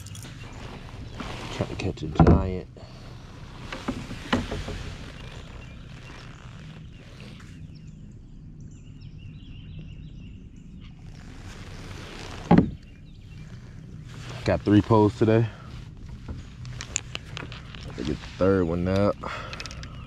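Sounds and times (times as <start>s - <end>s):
low wind rumble: 0.0s - 20.0s
faint bird chirps: 17.4s - 20.0s.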